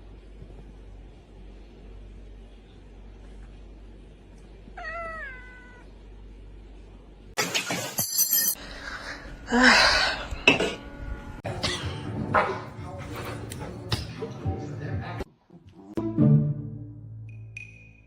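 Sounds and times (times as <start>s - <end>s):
cat meowing: 4.8s - 5.9s.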